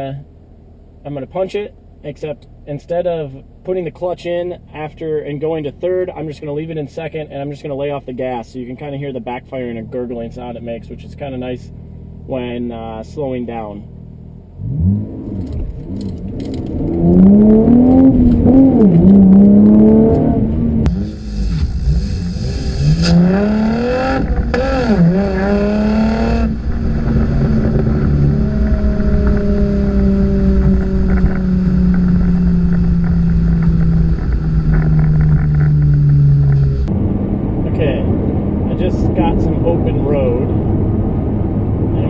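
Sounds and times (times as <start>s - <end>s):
car exhaust revving: 9.6s - 42.0s.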